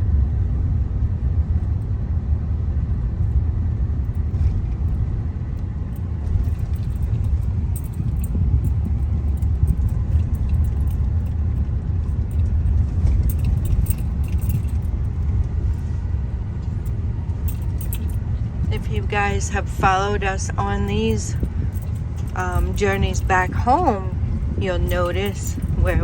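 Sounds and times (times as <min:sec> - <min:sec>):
car engine and tyres rumble: 0:00.0 - 0:26.0
light high clicking rattles: 0:04.0 - 0:19.2, 0:20.6 - 0:26.0.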